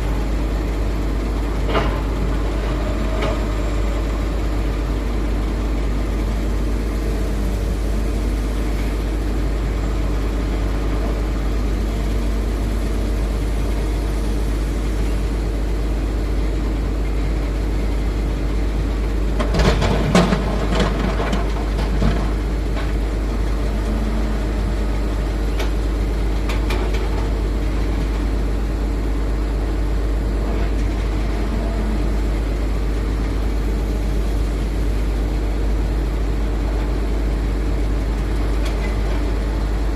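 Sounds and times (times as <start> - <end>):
excavator diesel engine running: 0.0 - 39.9
clatter and knocks: 19.4 - 23.0.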